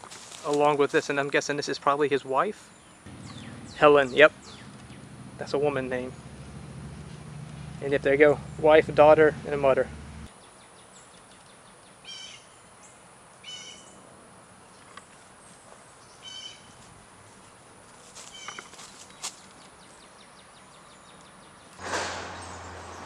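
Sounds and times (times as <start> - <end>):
steady hiss with low hum: 0.0 - 20.9
birds calling: 2.6 - 10.3, 15.8 - 16.8, 18.3 - 23.0.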